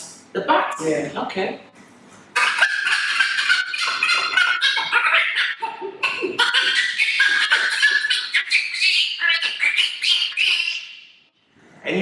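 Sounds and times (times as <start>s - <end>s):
man imitating bat squeaks: 2.4s - 11.0s.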